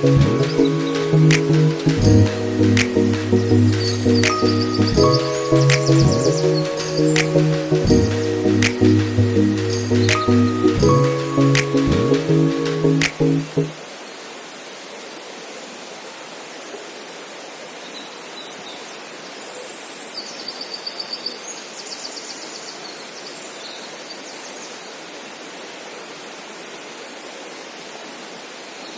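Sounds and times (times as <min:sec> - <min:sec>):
steady rushing hiss: 0:00.0 - 0:13.0
music: 0:00.0 - 0:13.7.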